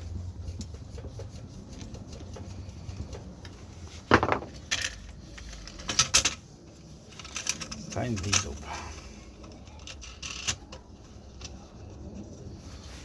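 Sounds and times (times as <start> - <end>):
loud metal clunk: 4.1 - 4.6.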